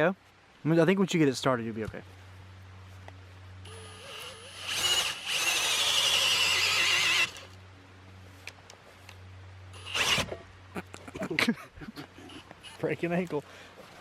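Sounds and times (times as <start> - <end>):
boring tool squealing in wood: 3.7 - 7.4, 9.8 - 10.4.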